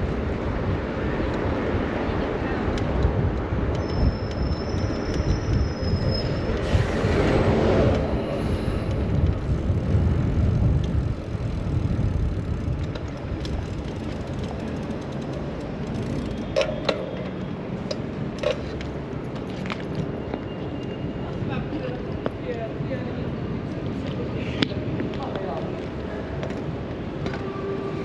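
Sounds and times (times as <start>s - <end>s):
wind rumble on microphone: 0.0s - 14.7s
city street traffic: 0.0s - 28.0s.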